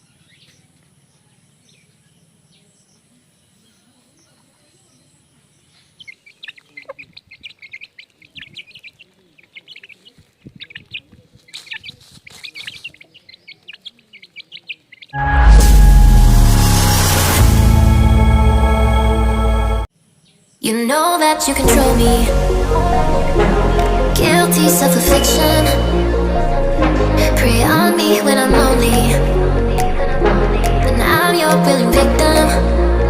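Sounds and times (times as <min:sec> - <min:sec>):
chicks peeping: 0:05.8 - 0:15.1.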